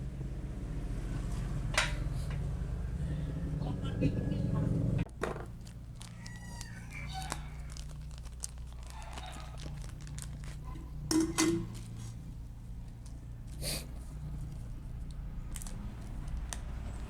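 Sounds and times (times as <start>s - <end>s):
steady low hum: 0.0s - 6.0s
clicks and rustles of parts handled: 5.1s - 17.0s.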